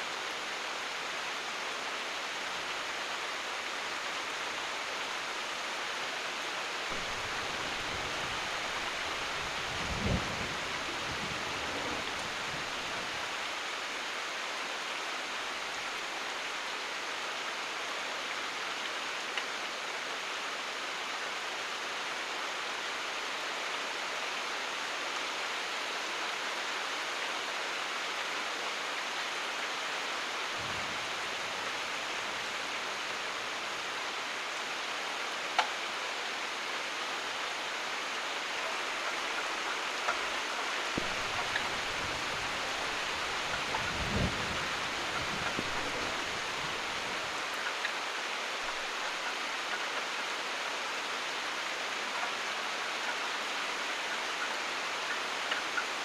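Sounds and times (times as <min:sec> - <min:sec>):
rain falling: 0:00.0 - 0:56.0
thunder rumbling: 0:06.9 - 0:13.0, 0:41.0 - 0:47.1.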